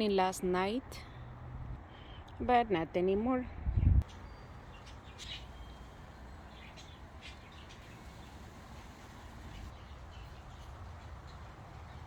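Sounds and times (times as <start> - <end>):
budgerigars chirping: 4.0 - 10.7.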